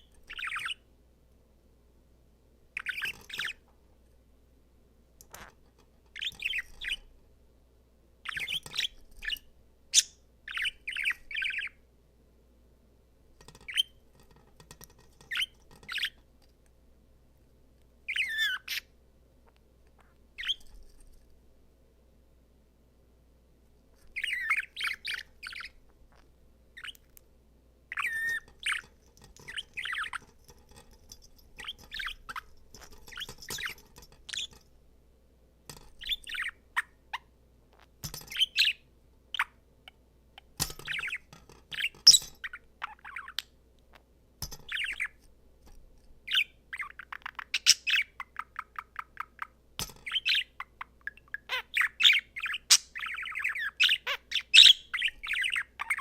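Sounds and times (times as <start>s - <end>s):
budgerigar warbling and chattering: 27.9s - 28.9s, 50.1s - 56.0s.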